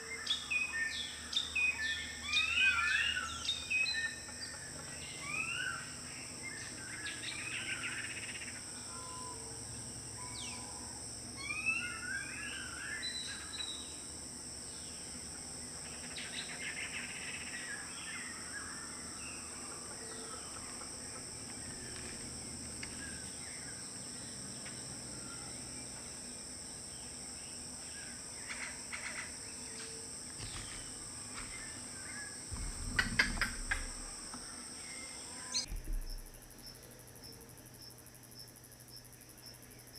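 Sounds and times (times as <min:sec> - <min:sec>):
insects droning: 0:00.0 - 0:39.9
birds calling: 0:28.4 - 0:36.8
knocks with low rumble: 0:32.5 - 0:34.4, 0:35.7 - 0:36.7.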